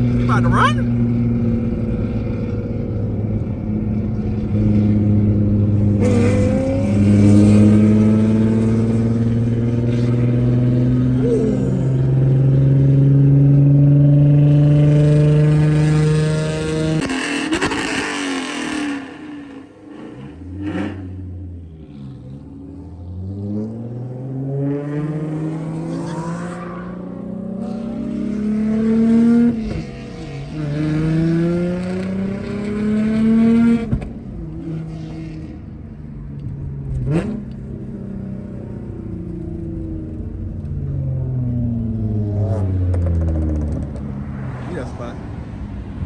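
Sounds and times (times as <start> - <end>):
car engine accelerating: 0.0 - 46.0.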